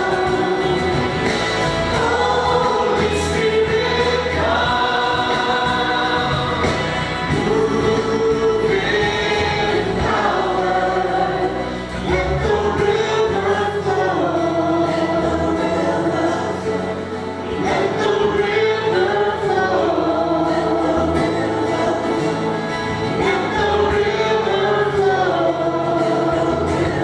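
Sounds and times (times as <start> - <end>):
choir singing worship music: 0.0 - 27.0
steady accompaniment: 0.0 - 27.0.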